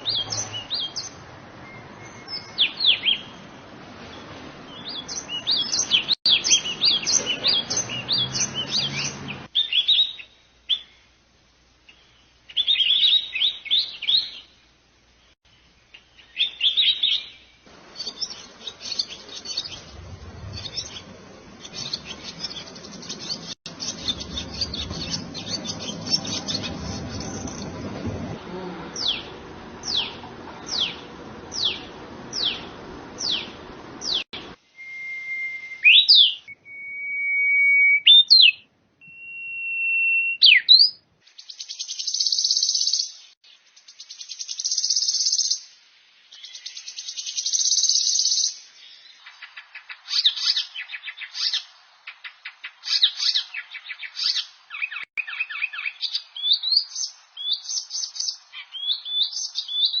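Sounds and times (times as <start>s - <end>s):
rapid bird chirps and twitters: 4.7s - 10.9s, 16.0s - 27.9s, 40.4s - 45.6s, 46.3s - 60.0s
long bird whistles with upward flick: 34.1s - 43.0s
down-slurred bird whistles: 34.8s - 41.0s.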